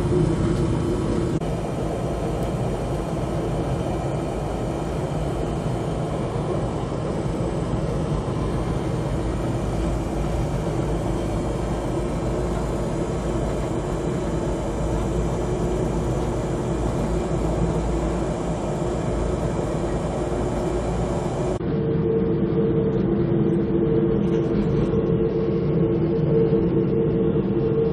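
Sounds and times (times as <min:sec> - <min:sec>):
train wheels rumbling on rail: 0:00.0 - 0:21.6.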